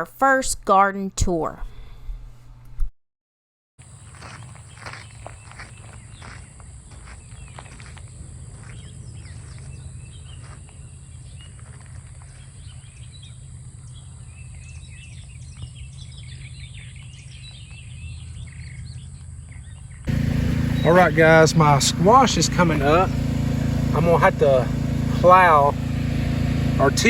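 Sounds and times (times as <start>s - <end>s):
light footsteps: 4.1s - 10.8s
birds chirping and singing: 4.2s - 25.8s
steady low rumble: 20.1s - 27.0s.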